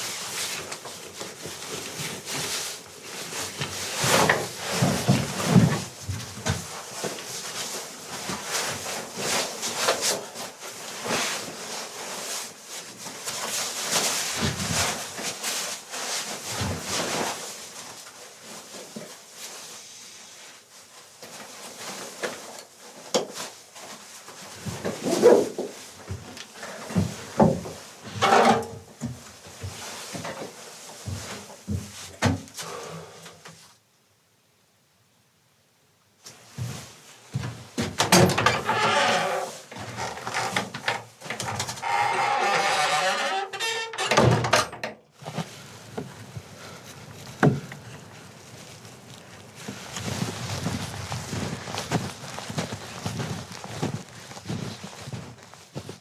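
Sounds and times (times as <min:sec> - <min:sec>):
objects knocking and scraping: 0:27.0 - 0:28.8.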